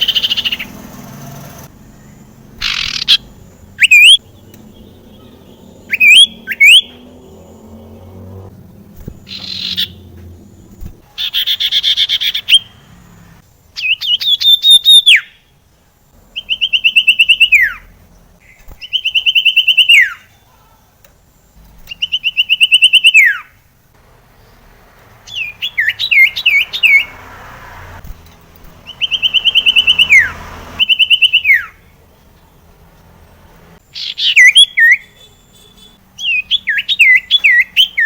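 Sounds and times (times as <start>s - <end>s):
bird song with high trills: 0.0s - 8.5s, 9.2s - 12.8s, 16.3s - 20.5s, 33.9s - 38.0s.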